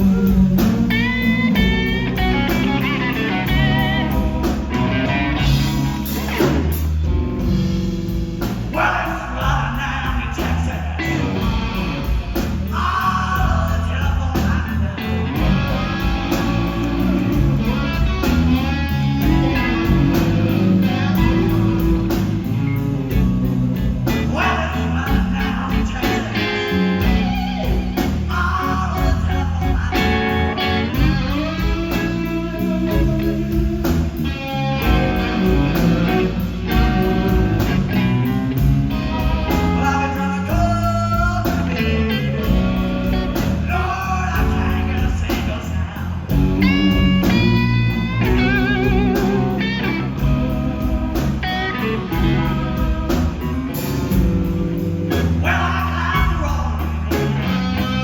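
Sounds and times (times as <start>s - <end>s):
electric guitar solo: 0.0s - 7.2s, 46.3s - 56.2s
blues band playing: 0.0s - 58.0s.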